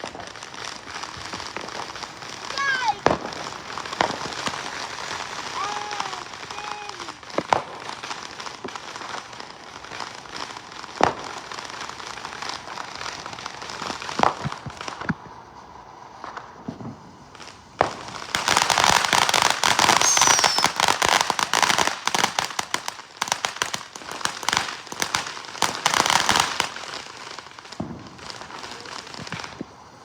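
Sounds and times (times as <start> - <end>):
firework falling whistle: 0.0 - 7.6, 18.4 - 22.8
fireworks crackling pops: 0.0 - 30.0
firework bang: 0.9 - 6.6, 17.8 - 22.4.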